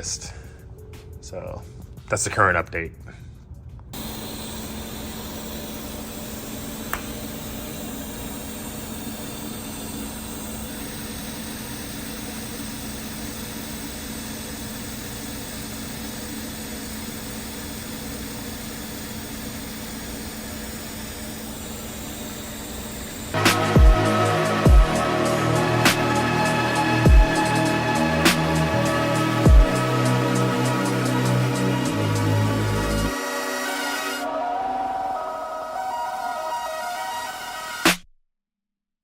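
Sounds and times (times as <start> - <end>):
music: 0.0 - 4.0, 23.4 - 38.0.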